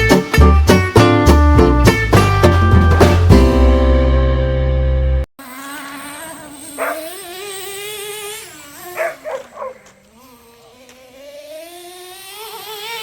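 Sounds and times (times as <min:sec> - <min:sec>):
model truck engine buzzing: 0:04.7 - 0:13.0
dog barking: 0:06.8 - 0:07.1, 0:09.0 - 0:10.0.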